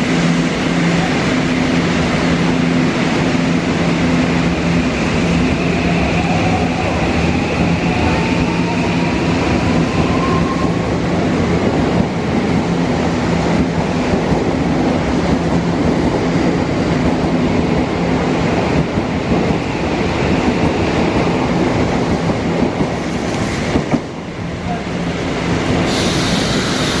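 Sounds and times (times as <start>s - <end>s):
train rumbling past: 0.0s - 27.0s
hiss: 25.8s - 27.0s.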